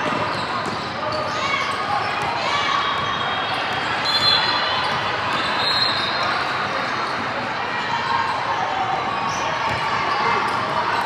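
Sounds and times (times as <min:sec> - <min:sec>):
basketball bouncing on court: 0:00.0 - 0:01.0.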